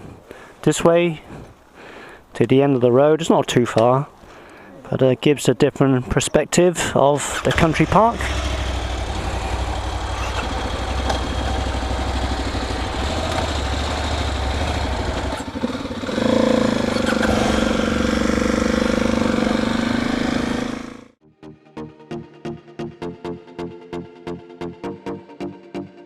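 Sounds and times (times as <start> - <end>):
motorcycle engine running: 7.4 - 21.2.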